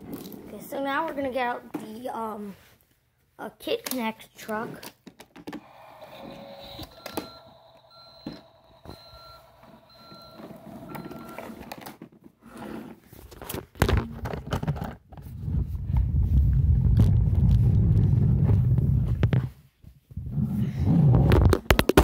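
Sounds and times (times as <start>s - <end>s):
toy reversing beeps: 5.6s - 11.6s.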